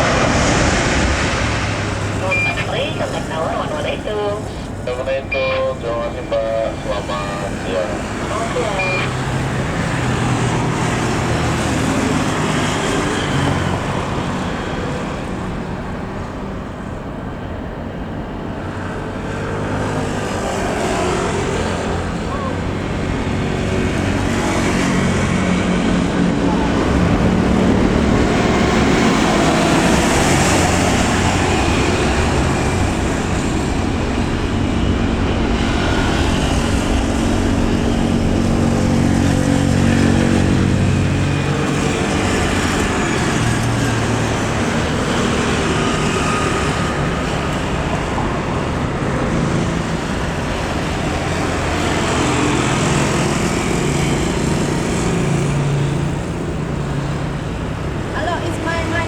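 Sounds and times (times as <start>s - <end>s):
engine running: 0.0s - 18.8s, 19.8s - 59.0s.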